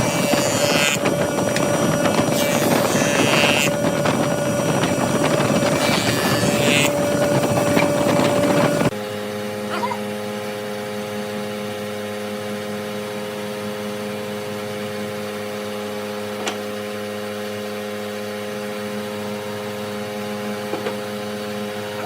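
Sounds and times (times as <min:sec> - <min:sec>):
wood lathe motor humming: 0:00.0 - 0:10.0.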